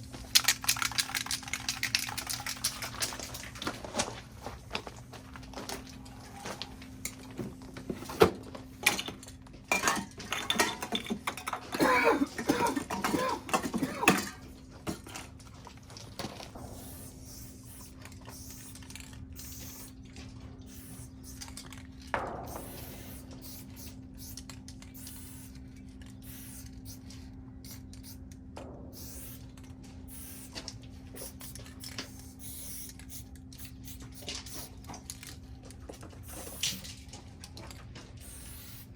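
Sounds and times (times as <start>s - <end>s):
steady low hum: 0.0s - 38.9s
hard objects clinking: 0.3s - 3.6s, 8.9s - 15.2s.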